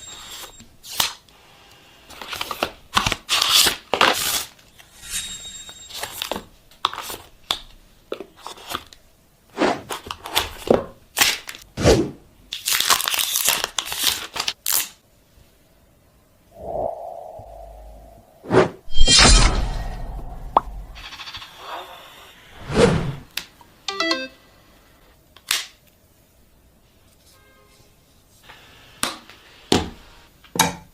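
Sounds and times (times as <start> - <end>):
packaging tearing and crinkling: 12.6 - 15.0.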